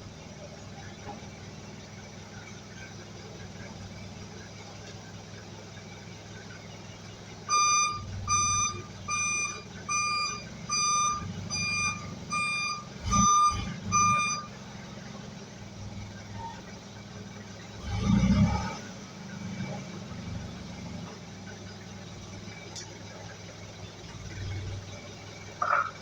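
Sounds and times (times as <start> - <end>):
low engine hum: 0.0 - 26.0
electronic warning beeps: 7.5 - 14.5.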